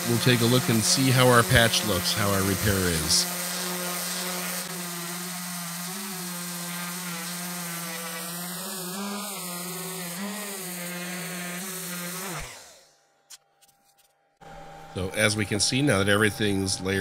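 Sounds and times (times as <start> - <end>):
electric sander sanding wood: 0.0 - 13.0.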